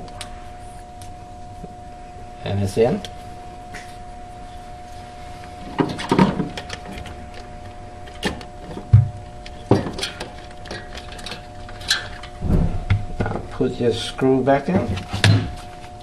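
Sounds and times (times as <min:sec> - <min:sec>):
metal parts clicking and rattling: 0:09.4 - 0:12.4
dull thump: 0:12.4 - 0:13.3.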